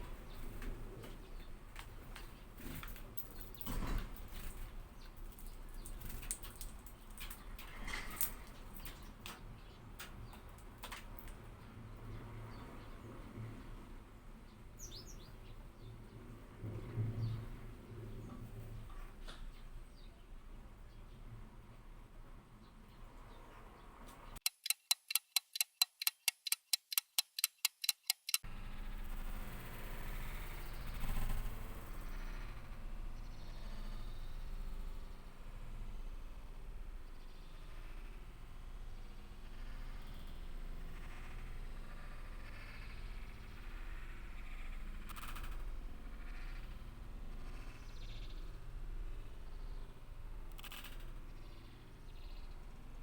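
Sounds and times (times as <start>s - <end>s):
bird short sharp ticks: 24.4s - 28.4s.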